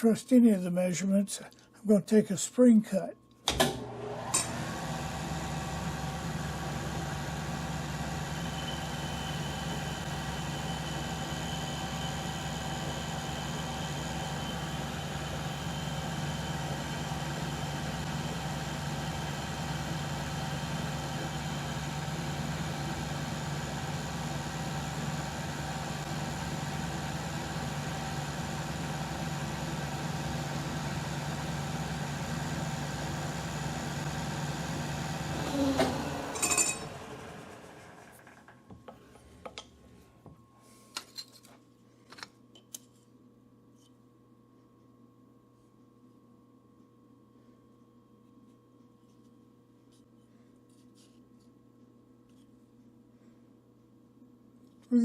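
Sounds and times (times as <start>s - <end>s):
metal lathe running: 4.3s - 37.2s.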